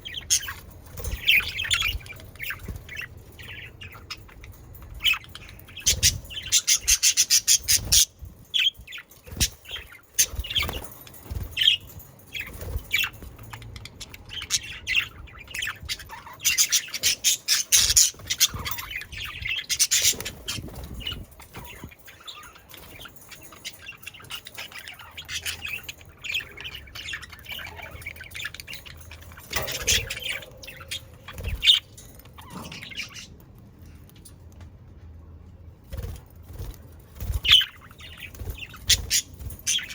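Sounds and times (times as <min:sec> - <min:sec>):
budgerigars chattering and squawking: 0:13.8 - 0:33.3, 0:37.4 - 0:39.9.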